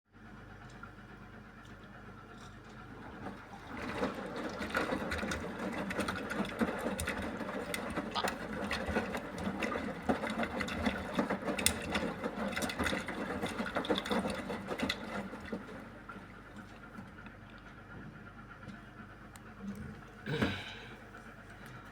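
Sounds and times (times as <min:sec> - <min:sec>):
washing machine drum sloshing: 0:02.4 - 0:17.2
faint hum: 0:16.3 - 0:21.9.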